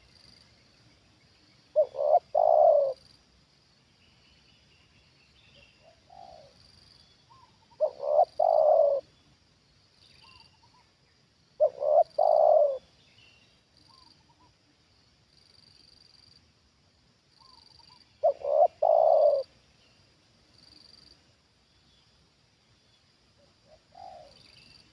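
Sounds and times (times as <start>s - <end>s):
dove cooing: 1.7s - 3.0s, 5.8s - 6.6s, 7.3s - 9.2s, 11.6s - 12.9s, 17.4s - 19.6s, 23.6s - 24.6s.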